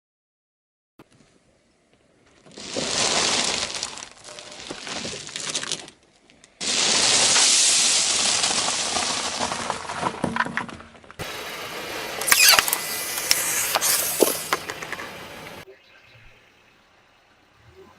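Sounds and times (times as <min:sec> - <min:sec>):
objects crunching under car tyre: 0:02.2 - 0:11.2, 0:12.2 - 0:15.6.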